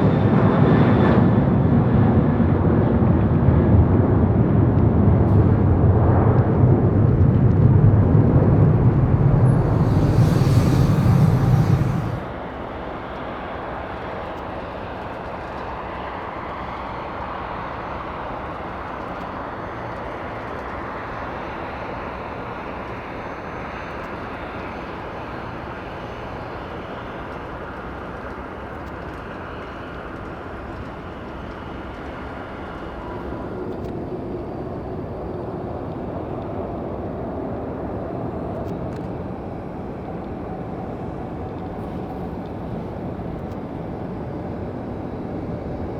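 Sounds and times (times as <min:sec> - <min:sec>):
jet engine whine: 0:00.0 - 0:45.9
loud jet roar: 0:05.3 - 0:12.3
low hum: 0:05.3 - 0:12.3.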